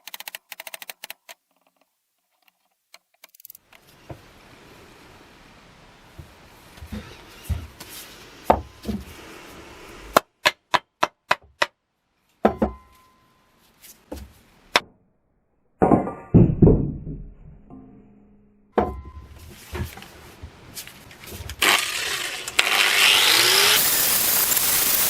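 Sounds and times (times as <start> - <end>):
quick clicks: 0.0 - 1.4, 3.0 - 3.8
sharp knocks and strikes: 12.4 - 13.0.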